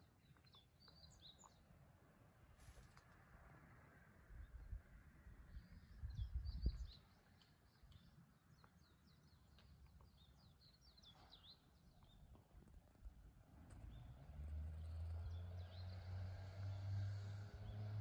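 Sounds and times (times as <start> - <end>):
wind buffeting microphone: 6.0 - 7.0.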